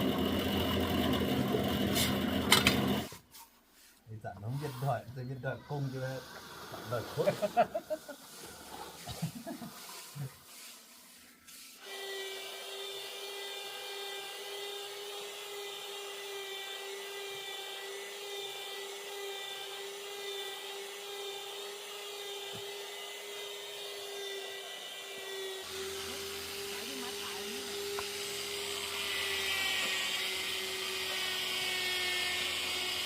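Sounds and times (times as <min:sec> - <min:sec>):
small motor whining: 0:00.0 - 0:03.2, 0:10.9 - 0:33.0.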